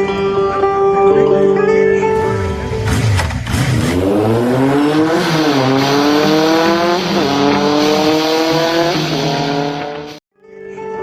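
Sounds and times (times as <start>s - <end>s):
vehicle engine accelerating: 2.1s - 10.2s.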